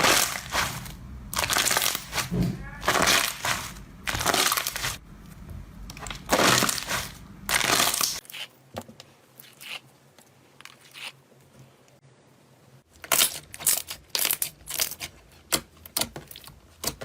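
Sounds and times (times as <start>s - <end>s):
slime squeezed crackling: 0.0s - 5.0s, 5.9s - 8.5s.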